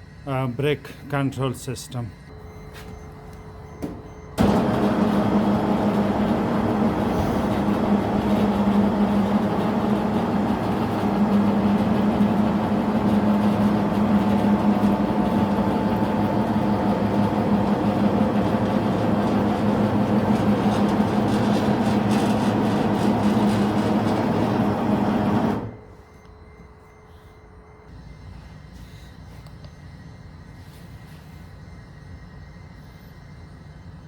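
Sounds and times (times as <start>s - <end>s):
mechanical drone with low hum: 1.6s - 34.0s.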